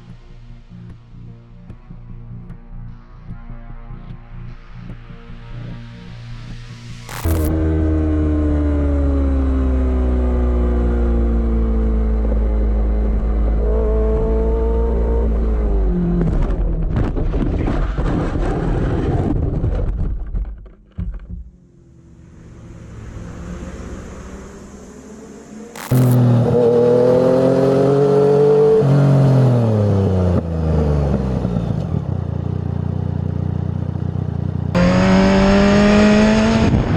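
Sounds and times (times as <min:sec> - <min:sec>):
motorcycle engine running: 0:07.1 - 0:16.8, 0:21.4 - 0:28.6, 0:29.2 - 0:36.7.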